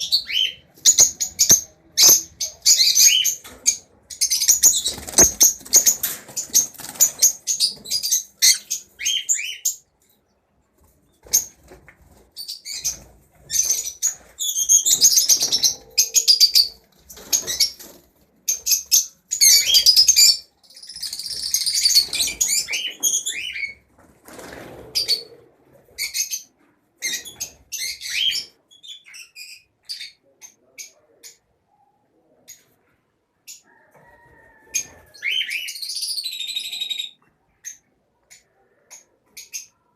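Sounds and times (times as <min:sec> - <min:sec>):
lovebirds chirping shrilly: 0:04.1 - 0:09.8, 0:35.1 - 0:38.4.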